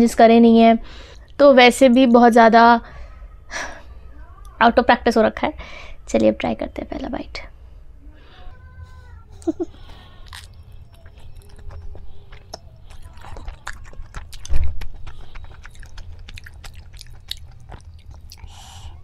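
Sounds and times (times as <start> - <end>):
person eating noodles: 9.4 - 19.0.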